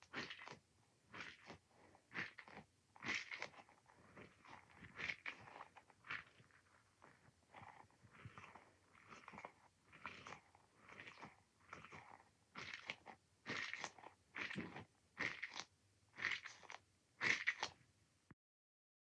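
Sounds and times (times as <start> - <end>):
squishy toy ball squeezed: 7.6 - 17.8.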